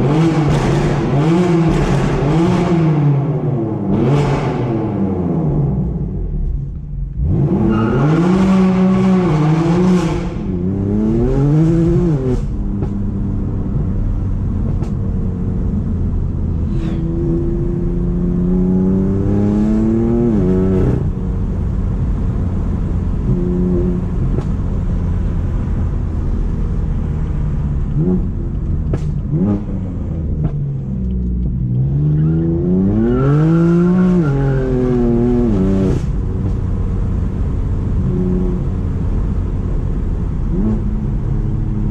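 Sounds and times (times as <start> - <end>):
car engine revving: 0.0 - 41.9.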